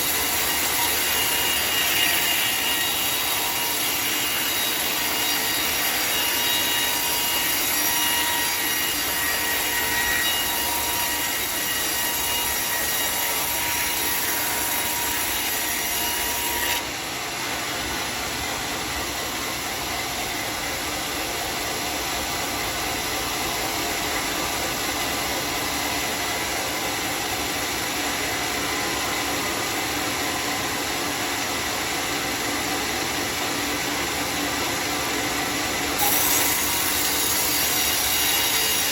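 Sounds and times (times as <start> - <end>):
circular saw cutting log: 0.0 - 38.9.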